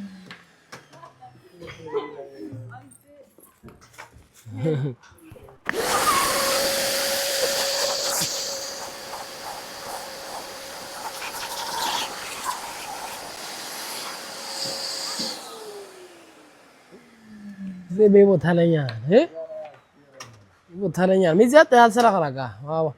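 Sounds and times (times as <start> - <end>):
vacuum cleaner motor whine: 0.0 - 1.8, 5.4 - 18.6.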